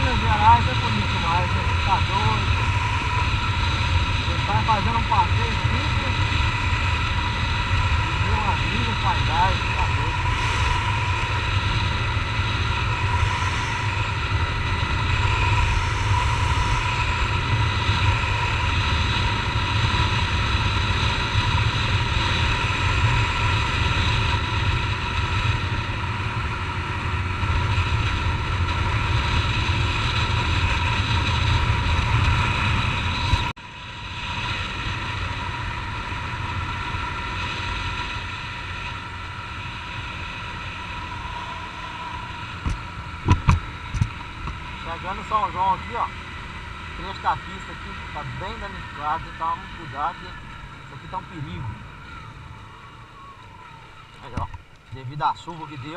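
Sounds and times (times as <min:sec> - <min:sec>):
motorcycle engine cruising: 0:00.0 - 0:55.9
wind rumble on microphone: 0:00.0 - 0:55.9.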